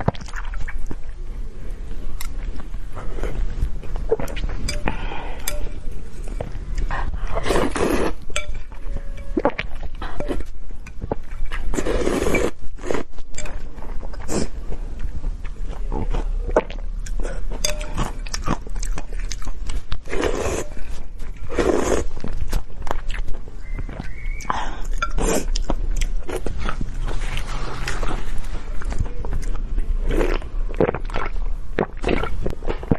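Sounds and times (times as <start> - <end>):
noisy eating bursts: 0.0 - 32.9
steady low hum: 0.7 - 32.9
chewing with wet mouth clicks: 12.9 - 21.4, 22.0 - 27.0, 28.8 - 32.9.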